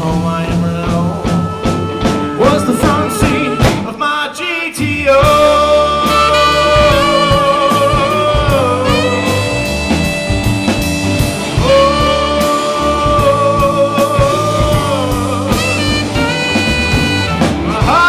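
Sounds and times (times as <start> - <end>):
bass guitar: 0.0 - 4.1, 4.8 - 18.0
drum kit: 0.0 - 18.0
lead electric guitar notes: 5.3 - 18.0.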